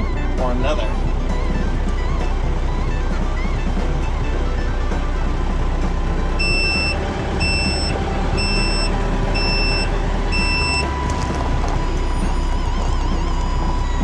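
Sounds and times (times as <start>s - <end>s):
steady low rumble: 0.0s - 14.0s
reversing vehicle backup beeps: 6.4s - 14.0s.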